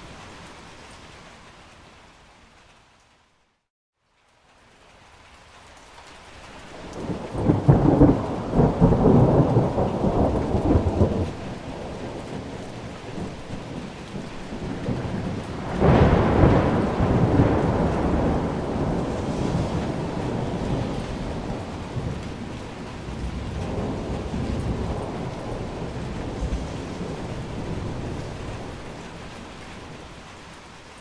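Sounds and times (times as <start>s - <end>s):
rain: 0.0s - 31.0s
thunder rumbling: 6.7s - 30.7s
sudden thunder peal: 14.6s - 29.9s.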